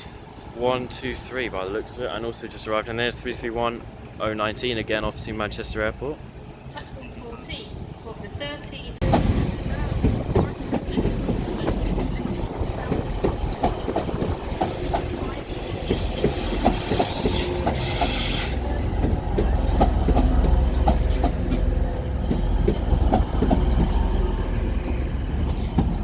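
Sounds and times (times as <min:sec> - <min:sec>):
train wheels clicking over rail joints: 0:09.0 - 0:26.0.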